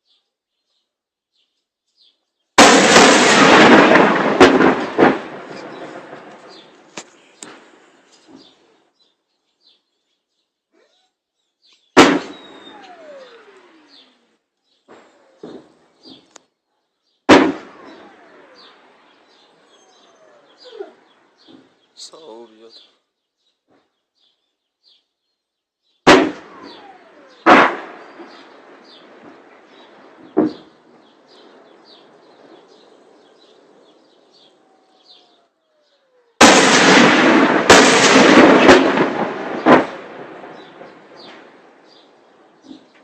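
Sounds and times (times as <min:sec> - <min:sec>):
loud shell explosion: 0:02.6 - 0:08.0, 0:12.0 - 0:13.6, 0:17.3 - 0:19.6, 0:26.1 - 0:34.5, 0:36.4 - 0:42.9
faint bird chirps: 0:05.6 - 0:17.3, 0:17.9 - 0:26.0, 0:28.0 - 0:36.4
falling whistle: 0:12.2 - 0:13.6.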